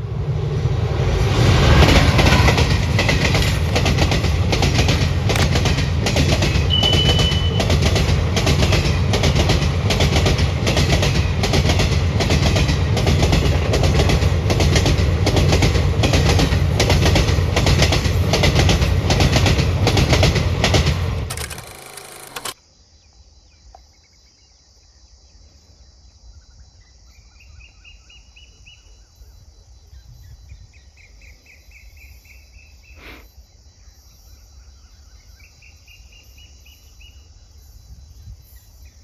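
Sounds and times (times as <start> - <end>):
train low rumble: 0.0 - 21.4
train wheels clattering: 1.5 - 22.6.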